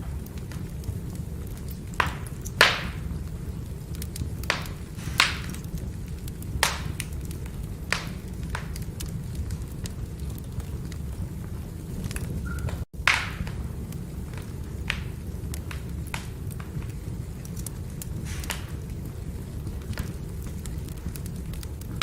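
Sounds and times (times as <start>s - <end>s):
firewood burning: 0.0s - 22.0s
logs crackling and popping: 0.0s - 22.0s.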